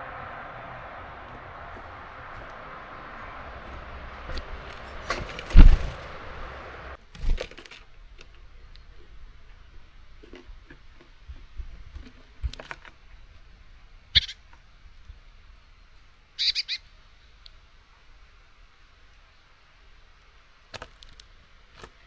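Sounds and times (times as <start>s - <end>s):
birds pecking at seed: 0.9s - 9.0s
bird chirps: 14.2s - 14.4s, 16.4s - 16.9s.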